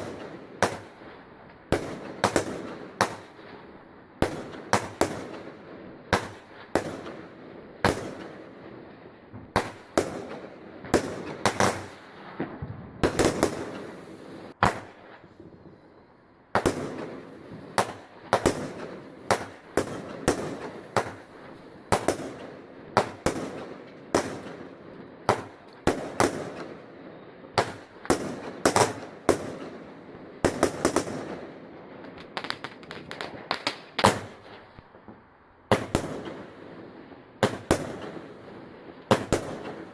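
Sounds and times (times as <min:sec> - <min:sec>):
fireworks bangs: 0:00.0 - 0:15.9, 0:16.5 - 0:39.9.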